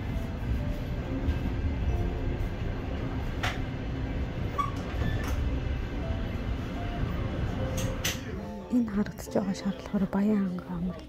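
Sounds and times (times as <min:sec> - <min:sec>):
train rumbling: 0:00.0 - 0:09.8.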